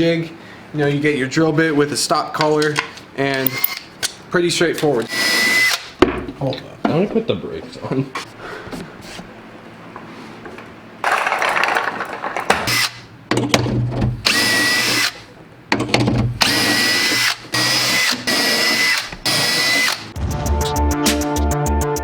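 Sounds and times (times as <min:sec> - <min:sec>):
power drill boring holes: 0:05.1 - 0:05.9, 0:12.6 - 0:13.0, 0:14.2 - 0:15.2, 0:16.4 - 0:20.1
music with a beat: 0:20.2 - 0:22.0.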